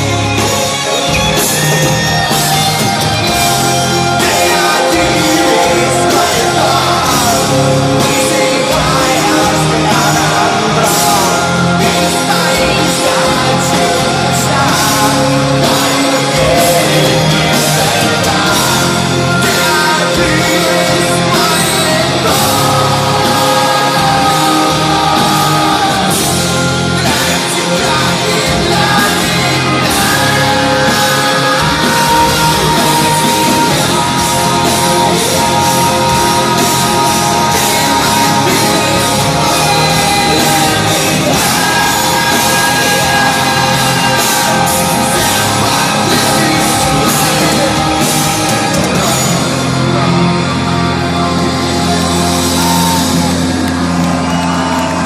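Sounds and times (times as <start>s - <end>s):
person singing: 0.0s - 54.0s
heavy rock band playing live: 0.0s - 55.0s.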